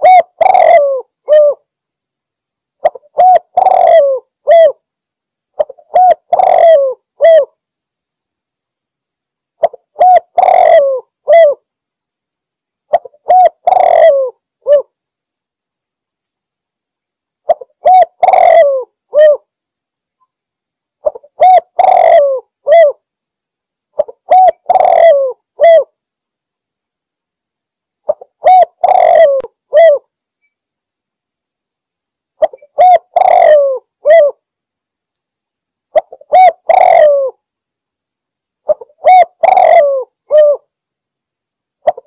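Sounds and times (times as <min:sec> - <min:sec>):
dove cooing: 0:00.0 - 0:01.6, 0:02.8 - 0:04.8, 0:05.6 - 0:07.6, 0:09.6 - 0:11.6, 0:12.9 - 0:14.9, 0:17.5 - 0:19.5, 0:21.0 - 0:23.0, 0:24.0 - 0:25.9, 0:28.1 - 0:30.1, 0:32.4 - 0:34.4, 0:35.9 - 0:37.4, 0:38.7 - 0:40.7.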